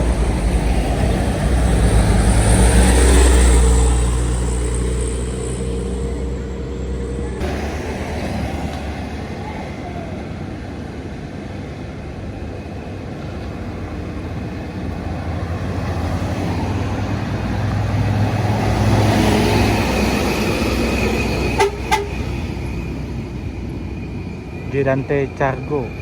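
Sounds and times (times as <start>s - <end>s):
diesel truck passing: 0.0s - 26.0s
truck horn toots: 21.4s - 22.6s.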